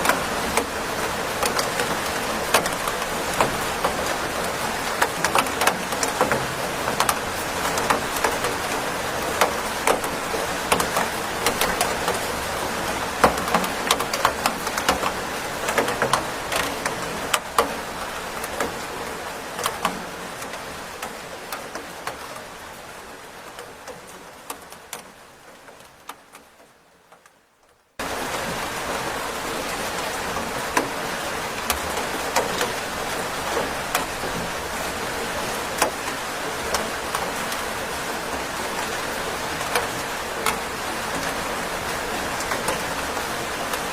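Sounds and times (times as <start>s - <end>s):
raindrops ticking on hard surface: 0.0s - 43.9s
steady rain: 0.0s - 43.9s.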